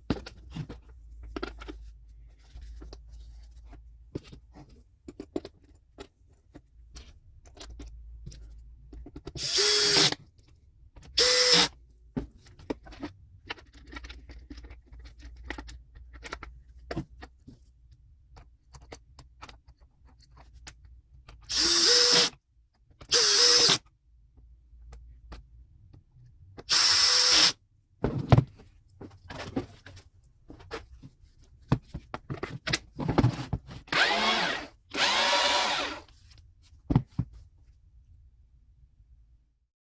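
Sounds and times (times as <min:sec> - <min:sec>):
cordless chainsaw motor whining: 0:34.0 - 0:36.0.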